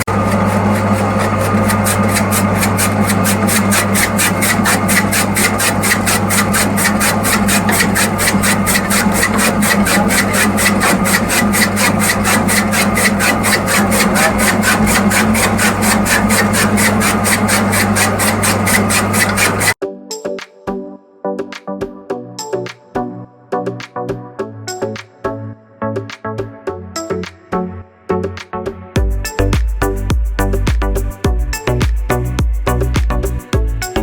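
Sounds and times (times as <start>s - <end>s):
chaff cutter motor humming: 0.0s - 19.8s.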